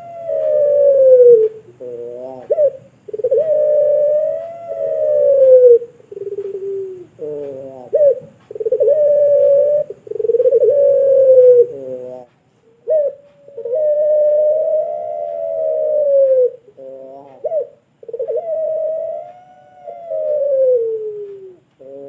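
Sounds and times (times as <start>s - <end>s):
dove cooing in long notes: 0.0s - 22.0s.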